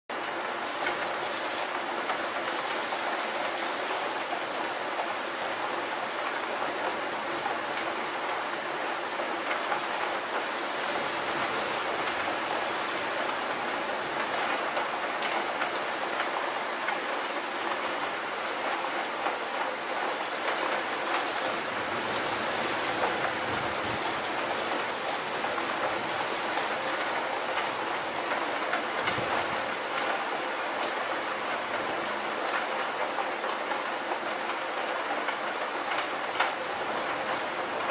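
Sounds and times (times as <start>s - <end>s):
steady rain hiss: 0.1s - 37.9s
raindrop ticks: 23.0s - 37.9s.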